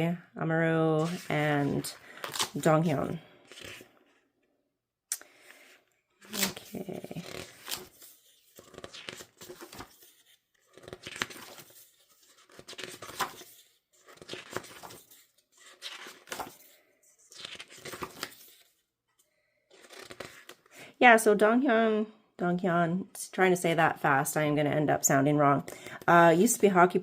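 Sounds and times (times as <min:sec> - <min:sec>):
book pages turning: 0:01.0 - 0:04.2, 0:05.3 - 0:20.7.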